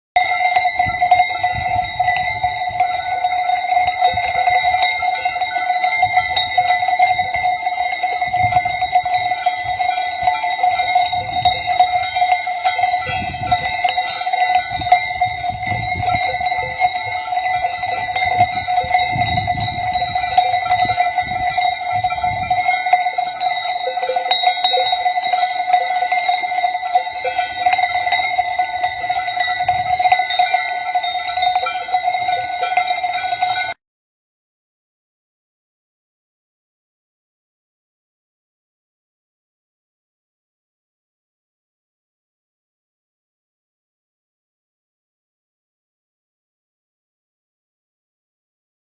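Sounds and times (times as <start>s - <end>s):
sheep bells jangling: 0.2s - 33.8s.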